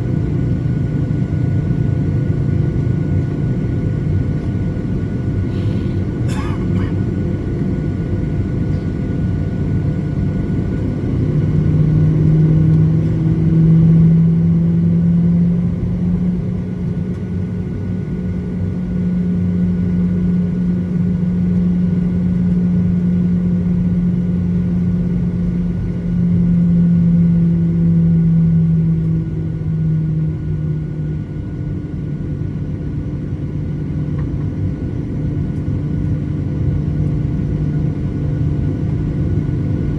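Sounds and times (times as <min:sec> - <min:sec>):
jet engines running: 0:00.0 - 0:14.7, 0:28.9 - 0:39.9.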